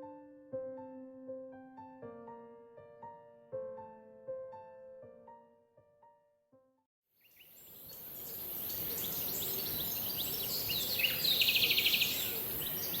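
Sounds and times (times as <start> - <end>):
piano piece: 0.0 - 6.8
bird chirps: 7.2 - 13.0
rapid bird trill: 8.0 - 13.0.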